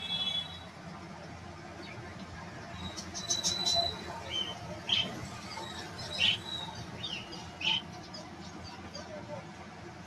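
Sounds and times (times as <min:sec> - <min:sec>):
small birds chirping and squawking: 0:02.8 - 0:09.0.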